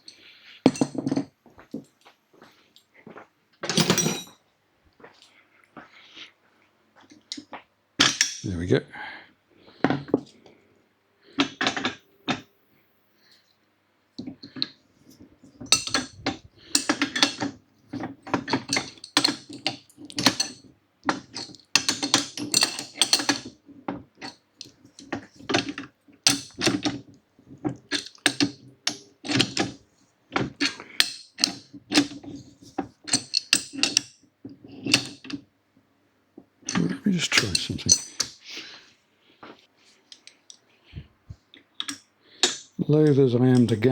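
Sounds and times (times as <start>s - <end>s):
metal clinks: 3.7s - 4.4s.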